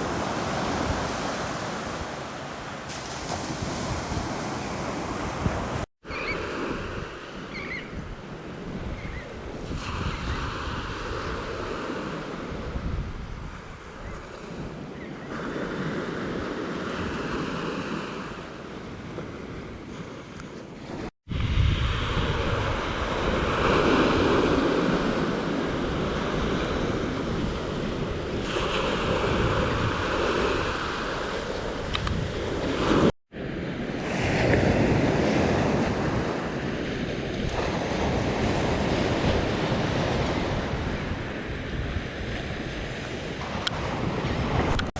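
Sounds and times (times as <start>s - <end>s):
ocean waves breaking on beach: 0.0s - 7.5s, 15.3s - 44.9s.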